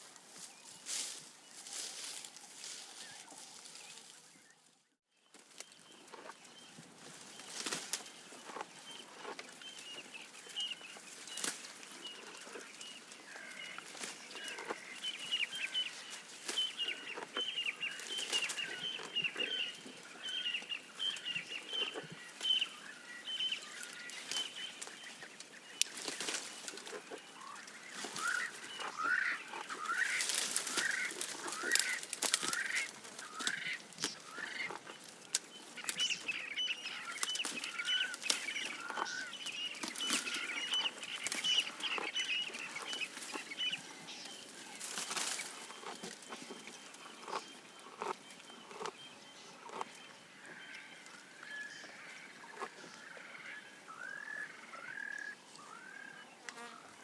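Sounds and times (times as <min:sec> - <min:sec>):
birds calling: 0:05.2 - 0:57.0
leaves snapping and rustling: 0:07.2 - 0:08.5, 0:11.1 - 0:12.6, 0:23.8 - 0:36.3, 0:36.9 - 0:43.6, 0:44.2 - 0:47.4.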